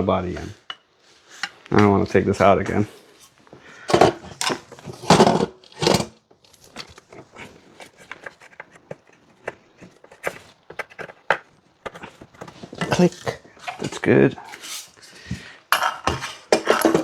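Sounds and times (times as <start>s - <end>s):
small clicks and scrapes: 0.4s - 1.8s, 3.2s - 15.4s
rustling knocks of plastic parts: 3.5s - 14.6s, 15.3s - 17.0s.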